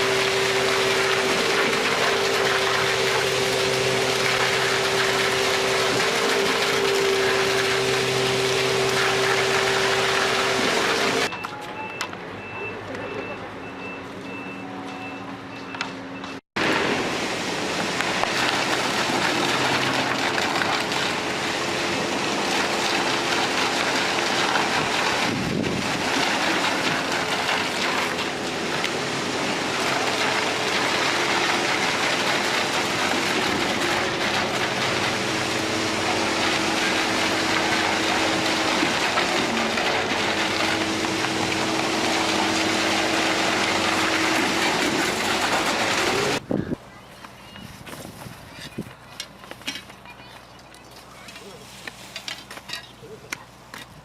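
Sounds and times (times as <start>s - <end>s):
engine hum: 0.0s - 11.3s, 15.8s - 47.5s
loud machinery noise: 0.0s - 11.4s, 15.8s - 46.6s.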